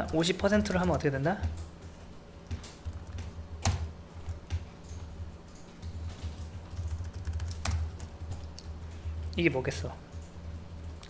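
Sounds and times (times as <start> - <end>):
steady low hum: 0.0 - 11.0
keyboard keystrokes: 2.5 - 8.7.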